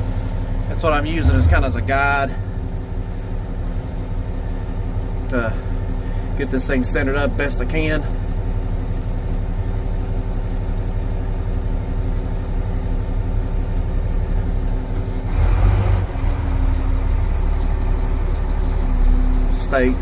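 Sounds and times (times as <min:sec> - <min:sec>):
diesel truck engine running: 0:00.0 - 0:20.0
rush of noise: 0:01.1 - 0:02.6.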